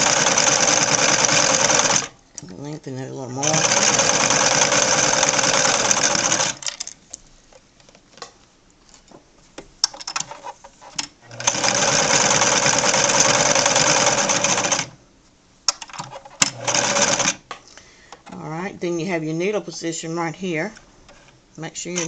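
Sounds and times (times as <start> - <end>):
sewing machine running: 0.0 - 2.1, 3.4 - 6.6, 11.3 - 15.0, 16.4 - 17.4.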